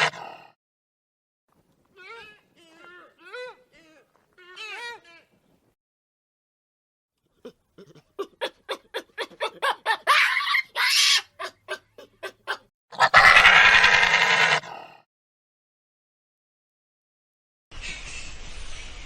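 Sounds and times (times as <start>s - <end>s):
harsh rasping animal sound: 10.5s - 15.0s.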